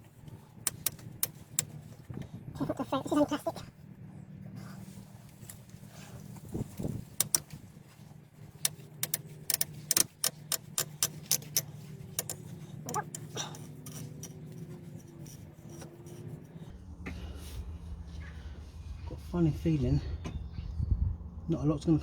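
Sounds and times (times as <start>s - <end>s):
steady low hum: 0.0s - 22.0s
screwdriver clicking and tapping: 0.7s - 1.8s, 6.8s - 7.6s, 8.6s - 16.7s.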